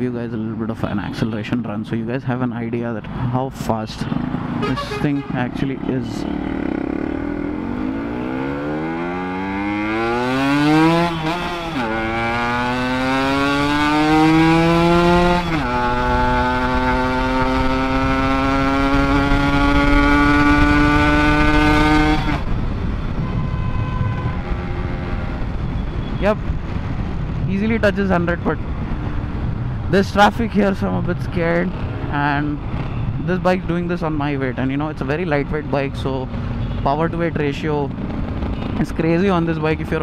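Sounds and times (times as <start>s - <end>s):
motorcycle engine accelerating: 4.0s - 25.9s, 37.5s - 40.0s.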